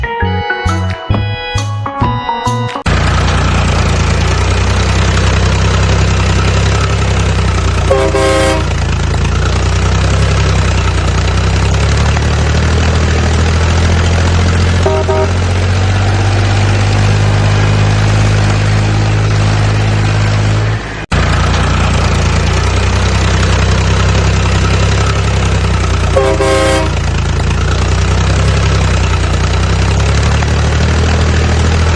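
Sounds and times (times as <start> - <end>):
toy truck engine running: 2.9 - 31.9
toy truck horn tooting: 7.8 - 9.0, 14.7 - 15.6, 26.1 - 27.2.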